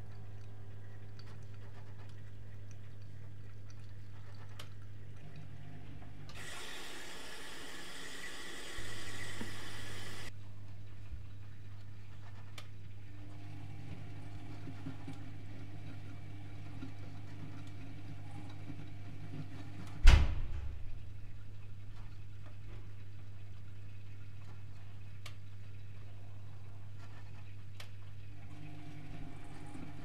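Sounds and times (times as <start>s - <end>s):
washing machine humming: 0.0s - 30.0s
washing machine clunk: 19.8s - 21.0s.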